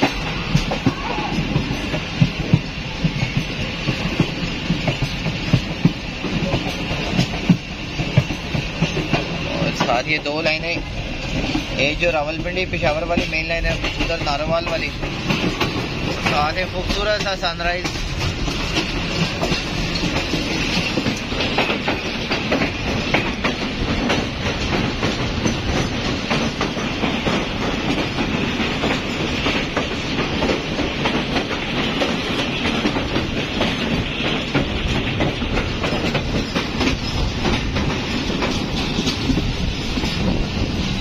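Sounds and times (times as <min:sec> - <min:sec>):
train wheels clattering: 0:00.0 - 0:41.0.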